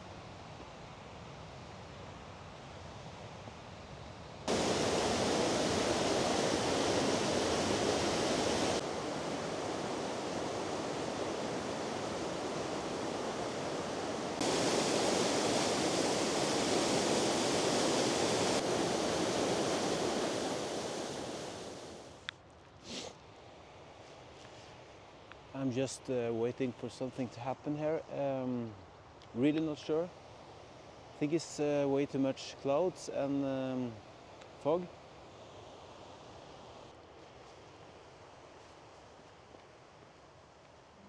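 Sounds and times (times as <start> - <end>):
waterfall rushing: 4.5 - 22.1.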